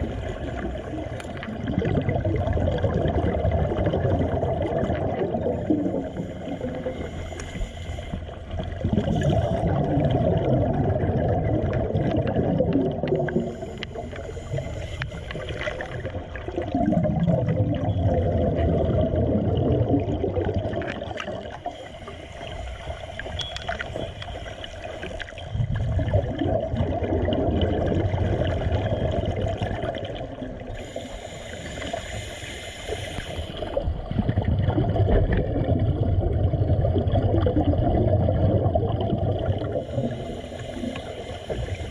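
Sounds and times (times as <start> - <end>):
water sloshing and gurgling: 0.0 - 41.9
faint hiss: 30.8 - 33.8.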